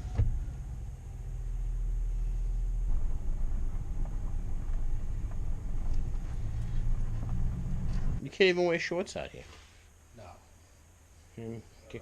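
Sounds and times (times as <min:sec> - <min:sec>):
brief thump: 0:00.0 - 0:00.6
car engine running: 0:00.0 - 0:08.2.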